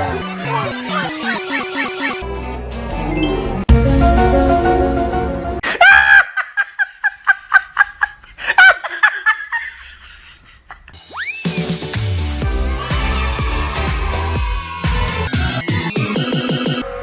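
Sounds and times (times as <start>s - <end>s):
cartoon voice crying out: 0.0s - 2.2s
cartoon voice laughing: 0.0s - 2.2s
background music: 0.0s - 5.6s, 11.0s - 16.9s
rising slide whistle: 11.1s - 11.8s.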